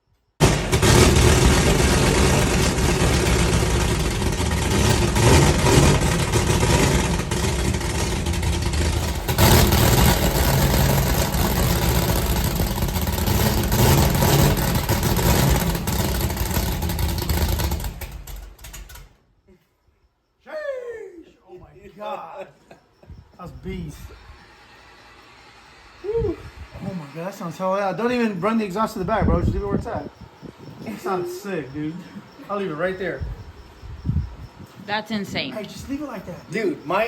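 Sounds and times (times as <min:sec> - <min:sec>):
loud engine revving: 0:00.4 - 0:18.3.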